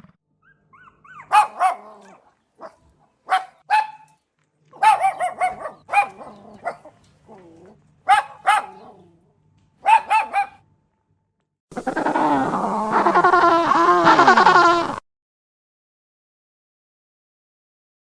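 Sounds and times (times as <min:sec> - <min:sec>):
dog barking: 0:01.1 - 0:04.2, 0:04.8 - 0:09.2, 0:09.8 - 0:10.6
chorus of animals calling: 0:04.8 - 0:09.2, 0:09.9 - 0:10.6.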